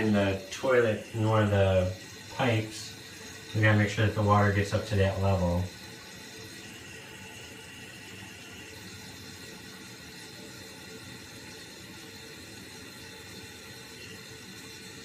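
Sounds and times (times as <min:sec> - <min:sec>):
toilet tank refilling: 0:00.0 - 0:15.0.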